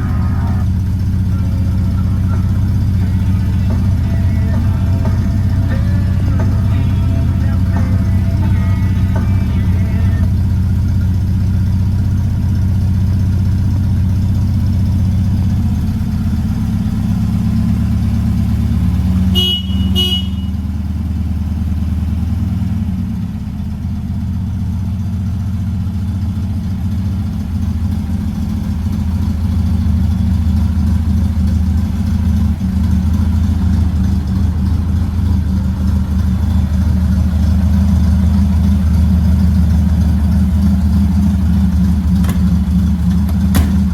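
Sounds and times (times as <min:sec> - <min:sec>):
car horn toots: 0:00.0 - 0:10.4, 0:19.2 - 0:20.7
car engine running: 0:00.0 - 0:43.9.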